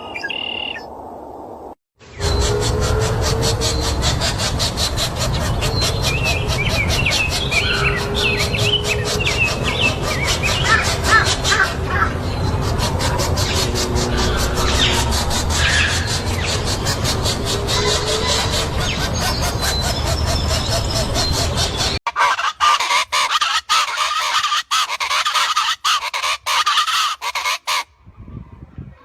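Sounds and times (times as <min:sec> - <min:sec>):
birds chirping: 0:00.0 - 0:01.0, 0:02.0 - 0:27.8
pulsing rushing background: 0:02.1 - 0:22.0.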